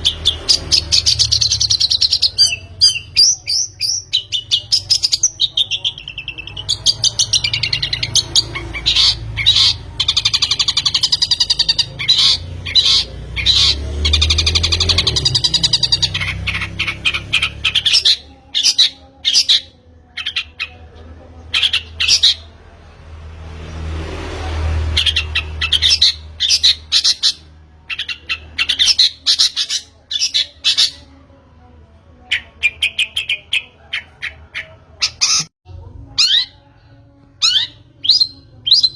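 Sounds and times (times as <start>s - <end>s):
bird chirping and squawking: 0.0s - 22.5s, 24.9s - 31.2s, 32.2s - 35.5s, 36.1s - 36.6s, 37.4s - 38.9s.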